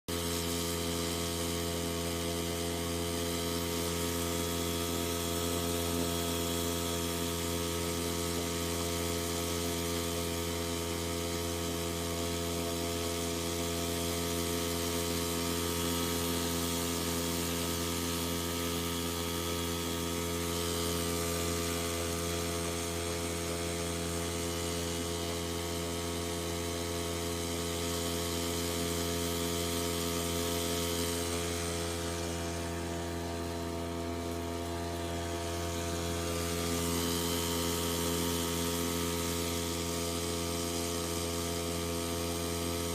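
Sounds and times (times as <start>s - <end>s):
outboard motor droning: 0.1s - 42.9s.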